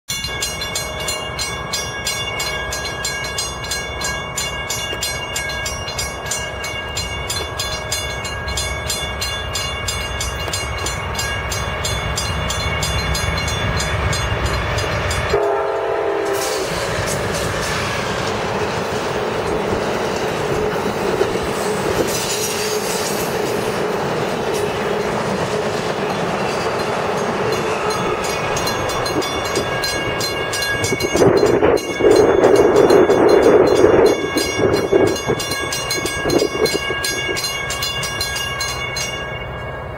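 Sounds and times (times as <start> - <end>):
train cars rumbling and clattering: 0.1 - 39.9
train horn: 15.3 - 17.2, 27.5 - 28.7.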